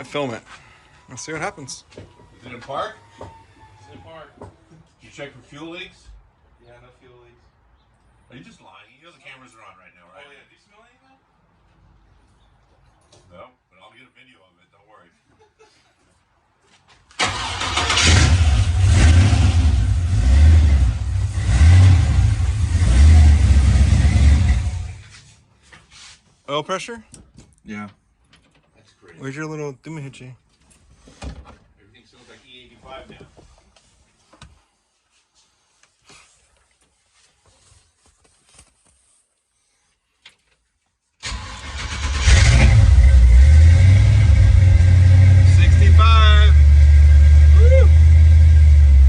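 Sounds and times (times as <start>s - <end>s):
car engine cranking and running: 17.2s - 25.0s, 41.2s - 49.0s.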